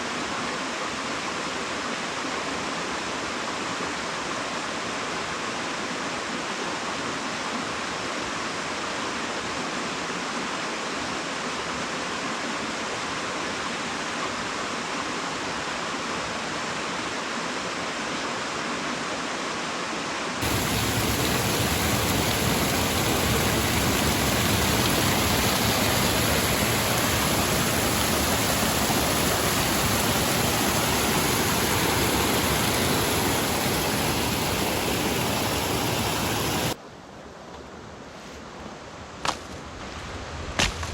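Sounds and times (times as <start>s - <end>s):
flowing water rushing: 0.0s - 36.8s.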